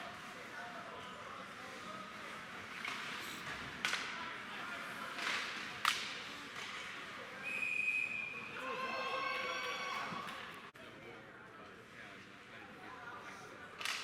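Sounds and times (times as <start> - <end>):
puck cracks: 5.1 - 7.0
referee's whistle: 7.4 - 8.6.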